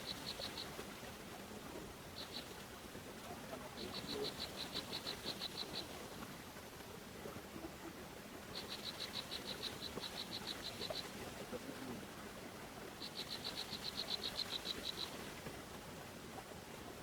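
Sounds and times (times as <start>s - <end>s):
small animal pulsed trill: 0.0s - 0.8s, 3.8s - 6.0s, 8.5s - 11.2s, 13.0s - 15.2s
faint outdoor hiss: 0.0s - 17.0s.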